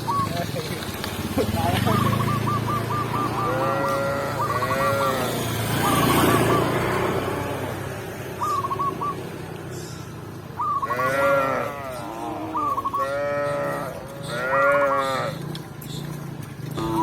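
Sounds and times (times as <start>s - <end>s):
cow mooing: 3.2s - 5.5s, 10.8s - 15.4s, 16.8s - 17.0s.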